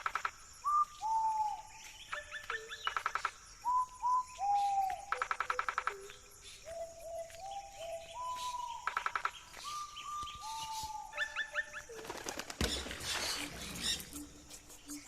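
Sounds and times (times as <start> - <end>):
birds whistling: 3.6 - 5.7, 6.6 - 12.0, 12.6 - 15.0
fast rattling bird trill: 11.4 - 15.0.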